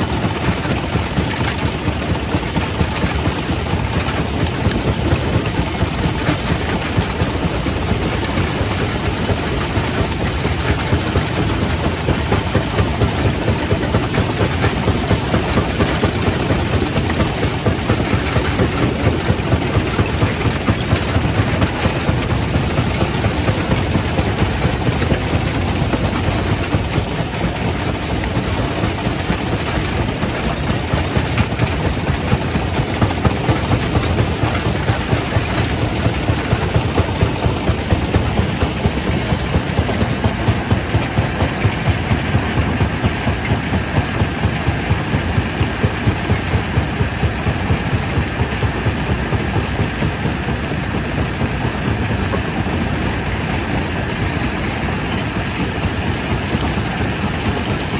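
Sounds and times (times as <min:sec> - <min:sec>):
rock crusher clattering and grinding: 0:00.0 - 0:57.9.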